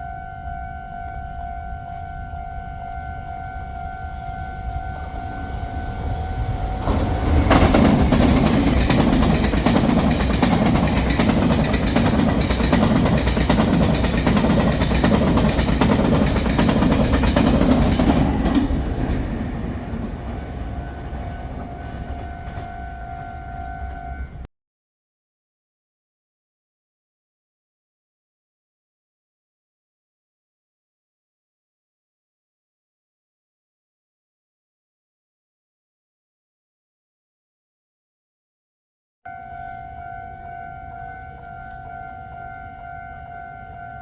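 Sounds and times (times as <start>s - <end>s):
train passing on rails: 0.0s - 24.5s, 39.3s - 44.0s.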